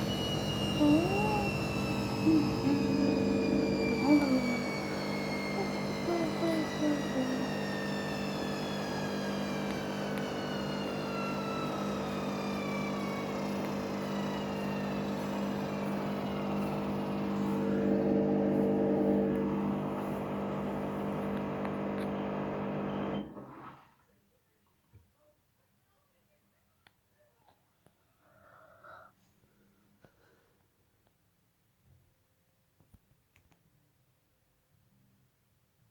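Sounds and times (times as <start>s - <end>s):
low hum: 0.0s - 23.1s
washing machine motor whine: 0.0s - 23.8s.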